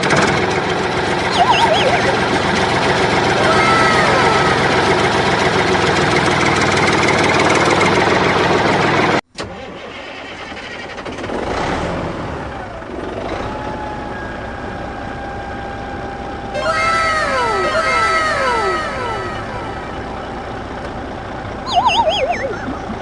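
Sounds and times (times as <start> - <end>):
tractor engine running loudly: 0.0 - 9.2.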